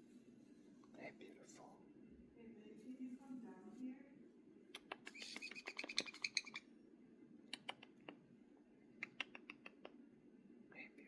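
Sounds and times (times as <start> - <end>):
parrot clicking and chirping: 4.8 - 6.6, 7.5 - 8.2, 9.0 - 10.0.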